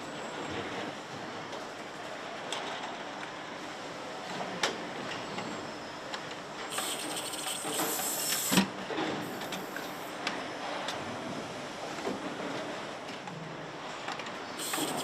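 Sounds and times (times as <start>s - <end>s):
hum of machines: 0.0s - 15.0s
high air hiss: 6.7s - 8.6s, 14.6s - 15.0s.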